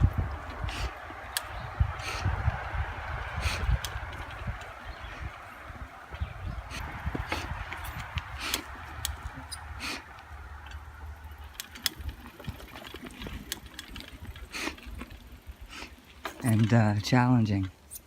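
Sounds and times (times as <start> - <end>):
bike clicks and knocks: 0.0 - 2.3, 3.1 - 18.0
steady low rumble: 0.0 - 12.8.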